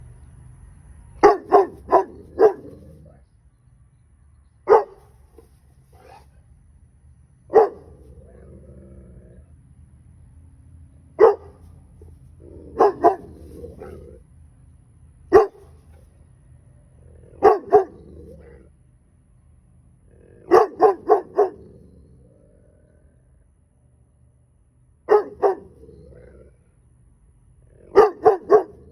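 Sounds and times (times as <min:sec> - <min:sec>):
dog barking: 0:01.2 - 0:02.9, 0:04.6 - 0:06.3, 0:07.5 - 0:08.1, 0:11.2 - 0:11.7, 0:12.7 - 0:14.1, 0:15.3 - 0:15.9, 0:17.4 - 0:18.1, 0:20.4 - 0:21.8, 0:25.1 - 0:25.8, 0:27.9 - 0:28.9
dog growling: 0:07.6 - 0:09.6, 0:12.3 - 0:14.2, 0:17.0 - 0:18.7, 0:20.0 - 0:23.4, 0:25.2 - 0:26.7.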